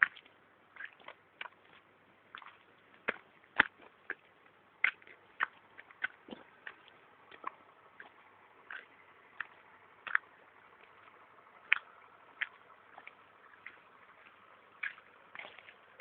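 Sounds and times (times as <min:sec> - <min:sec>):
rainwater dripping: 0:00.0 - 0:16.0.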